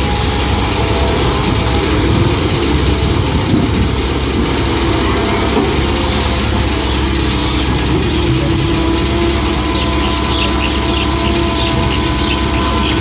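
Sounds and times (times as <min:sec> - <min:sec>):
excavator diesel engine running: 0:00.0 - 0:13.0
wavering whine: 0:00.0 - 0:13.0.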